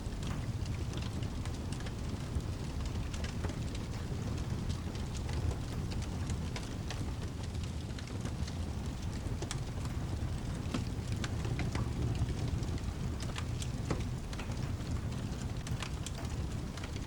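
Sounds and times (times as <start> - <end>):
fire crackling: 0.0 - 17.0
low rumble of rain: 0.0 - 17.0.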